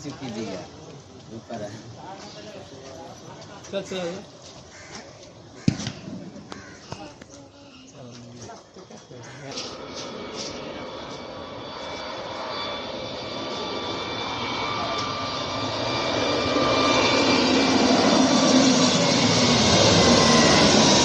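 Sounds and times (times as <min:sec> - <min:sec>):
jet airliner engine rush: 0:09.3 - 0:21.0.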